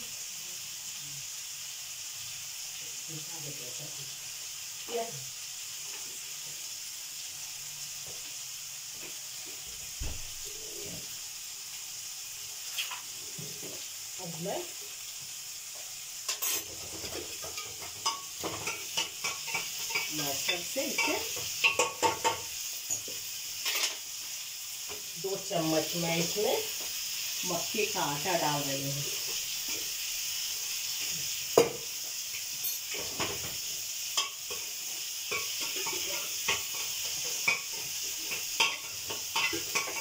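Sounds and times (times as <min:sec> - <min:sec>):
masala sizzling in a pan: 0:00.0 - 0:40.0
spatula scraping and knocking pan: 0:16.3 - 0:24.0, 0:32.9 - 0:40.0.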